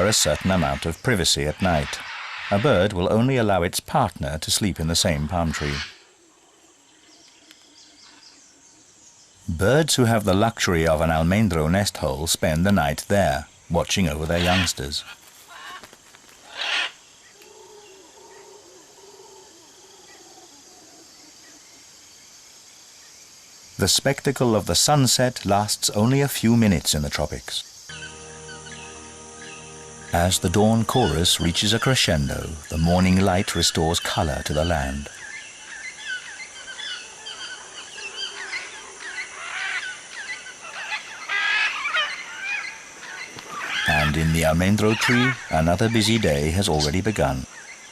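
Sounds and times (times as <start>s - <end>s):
harsh bird call: 0.0s - 3.2s, 5.2s - 6.1s, 14.2s - 18.1s, 27.9s - 47.9s
insects hissing: 0.0s - 47.9s
macaw squawk: 1.6s - 2.9s, 14.3s - 14.8s, 15.5s - 17.0s, 34.5s - 47.7s
tropical birds chirping and whistling: 27.6s - 47.9s
faint wavering low call: 27.9s - 32.9s.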